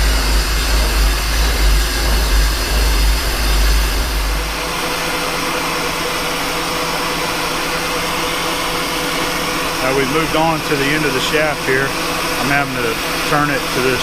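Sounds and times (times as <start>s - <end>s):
heavy low rumble: 0.0s - 5.2s
metal lathe cutting steel: 0.0s - 14.0s.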